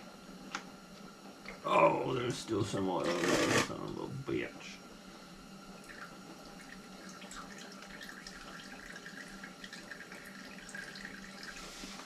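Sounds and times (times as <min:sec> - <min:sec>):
oil trickling: 0:05.8 - 0:11.7.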